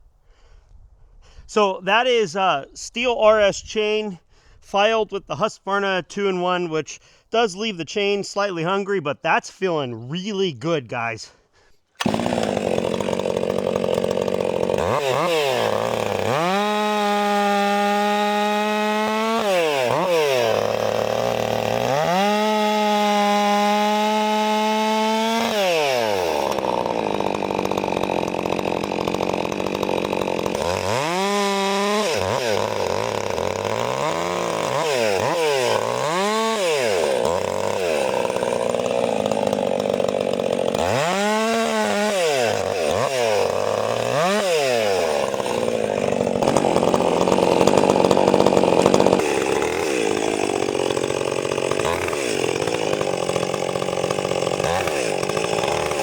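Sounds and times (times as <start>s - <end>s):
chainsaw cutting wood: 11.8s - 56.0s.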